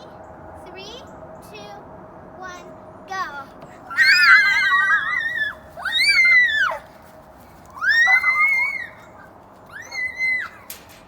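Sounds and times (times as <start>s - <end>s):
children squealing in play: 3.9s - 7.0s, 7.7s - 10.9s.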